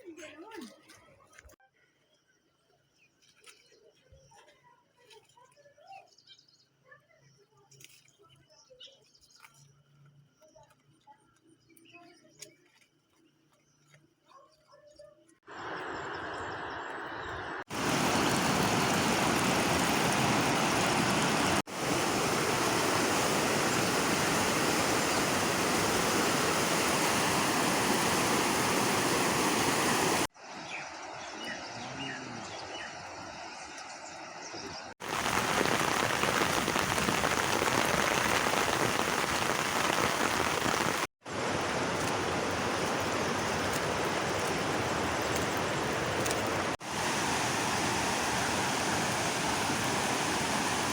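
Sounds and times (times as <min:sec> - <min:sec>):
rushing water: 0:15.5 - 0:31.1, 0:35.0 - 0:50.9.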